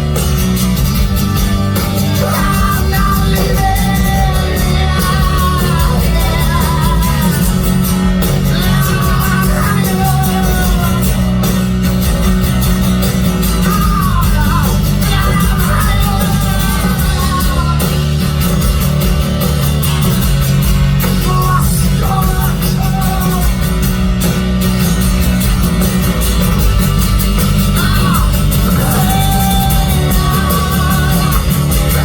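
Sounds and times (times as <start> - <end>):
live rock band playing: 0.0 - 32.0
person singing: 1.8 - 11.5, 13.5 - 18.4, 21.0 - 23.8, 27.6 - 32.0.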